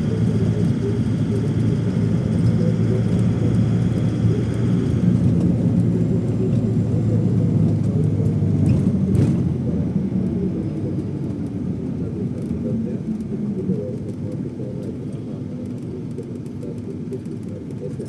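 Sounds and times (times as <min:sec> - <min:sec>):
airliner engine drone in cabin: 0:00.0 - 0:18.0.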